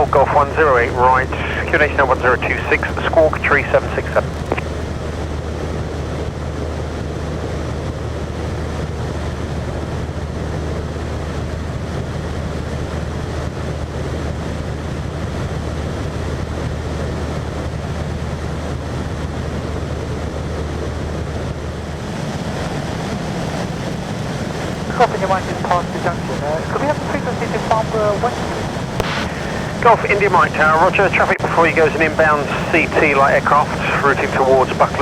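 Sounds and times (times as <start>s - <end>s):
rushing airflow: 0.0s - 4.9s, 23.4s - 35.0s
propeller plane engine droning: 0.0s - 35.0s.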